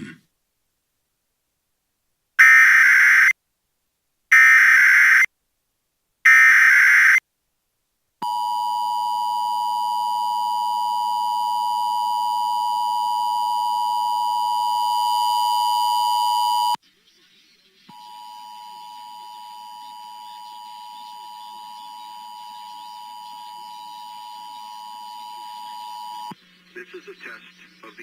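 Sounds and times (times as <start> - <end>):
buzzy digital header bursts: 2.4 - 3.3, 4.3 - 5.3, 6.3 - 7.2
two-tone attention signal: 17.9 - 26.3.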